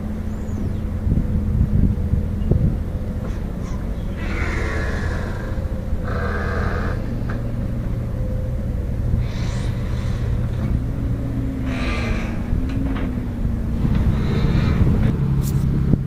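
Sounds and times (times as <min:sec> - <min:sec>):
diesel engine rumbling: 0:00.0 - 0:16.0
short noisy surges: 0:03.2 - 0:08.3, 0:09.1 - 0:15.8.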